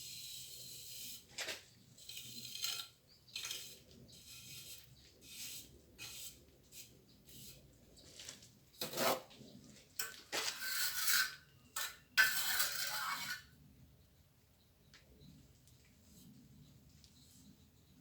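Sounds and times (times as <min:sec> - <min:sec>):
trowel scraping mortar: 0:00.0 - 0:07.6, 0:08.8 - 0:09.3, 0:10.0 - 0:13.5.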